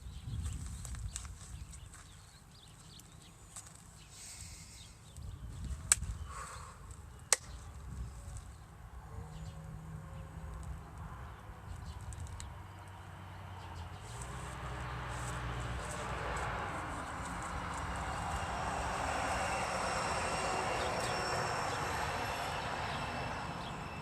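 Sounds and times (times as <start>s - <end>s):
broad rushing noise: 14.0s - 24.0s.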